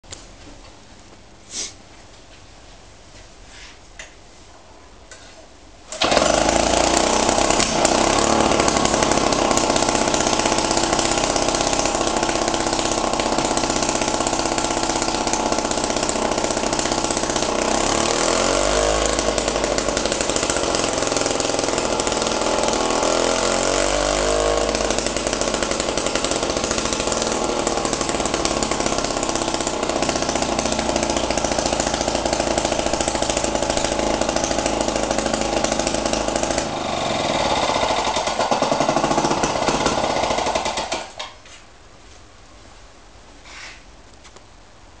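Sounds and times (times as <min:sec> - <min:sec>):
lawnmower engine running: 0:05.9 - 0:41.3.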